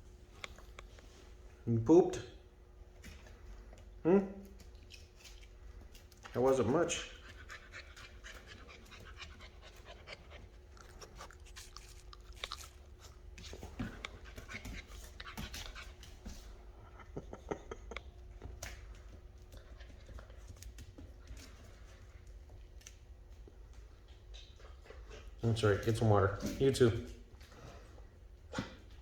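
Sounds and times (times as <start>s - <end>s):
puppies panting: 4.8s - 22.5s.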